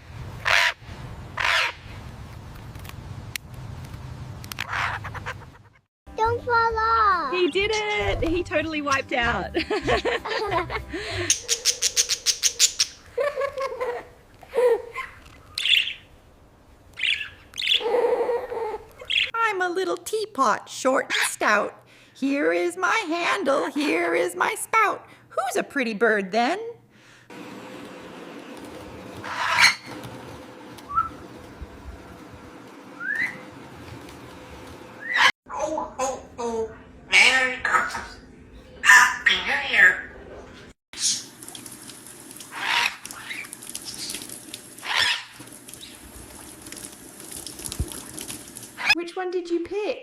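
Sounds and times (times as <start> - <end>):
parrot squawking: 0.4 - 0.8, 1.4 - 1.8, 4.7 - 5.4, 11.3 - 13.0, 14.9 - 16.1, 17.0 - 19.3, 29.2 - 29.9, 35.0 - 35.3, 37.1 - 40.1, 42.5 - 44.2, 44.8 - 46.0
parrot squawking and whistling: 29.2 - 29.9, 33.0 - 33.4, 35.0 - 35.3, 44.8 - 46.0.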